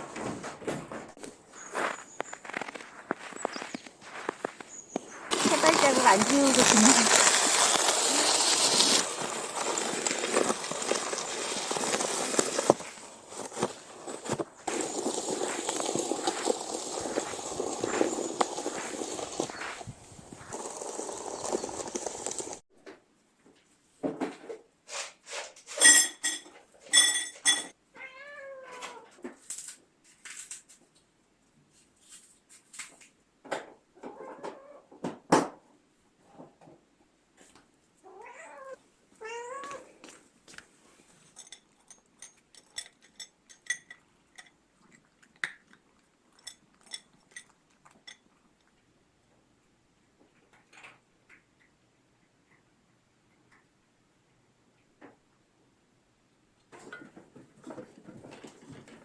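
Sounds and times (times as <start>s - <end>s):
cat meowing: 27.9s - 29.1s, 38.0s - 40.0s.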